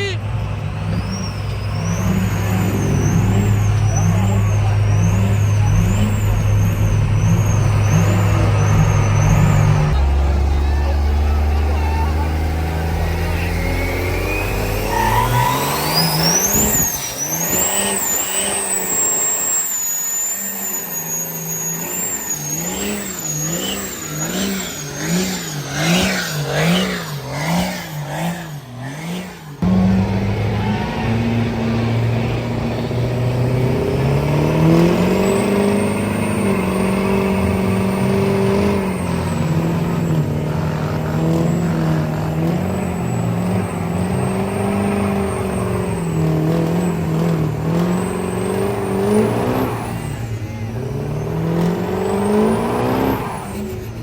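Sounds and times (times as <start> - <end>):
truck engine revving: 0.0 - 54.0
high whine: 0.9 - 27.3.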